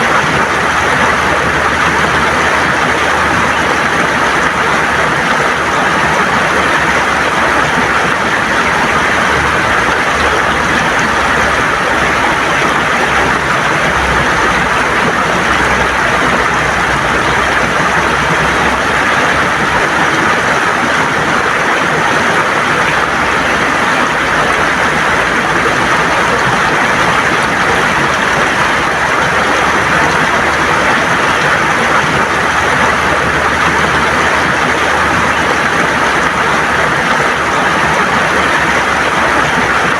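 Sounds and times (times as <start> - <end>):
river water rushing over stones: 0.0 - 39.9.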